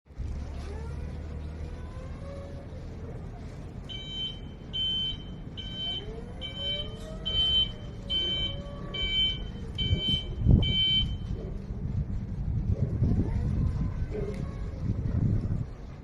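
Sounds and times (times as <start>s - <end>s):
high warning beeps: 3.9s - 11.4s
low rumble: 5.5s - 16.0s.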